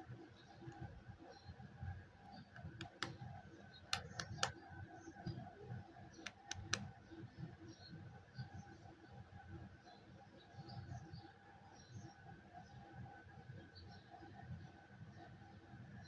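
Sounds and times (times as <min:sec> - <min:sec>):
sharp clicks and taps: 0:02.2 - 0:03.3, 0:03.9 - 0:04.6, 0:06.2 - 0:06.9.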